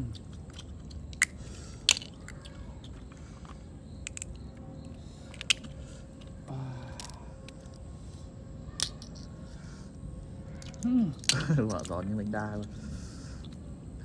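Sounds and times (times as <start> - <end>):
chewing and biting seafood: 0.0 - 3.1.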